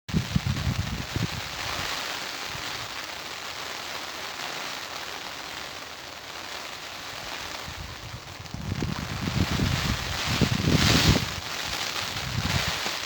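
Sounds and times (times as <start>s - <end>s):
rain falling: 0.1s - 13.0s.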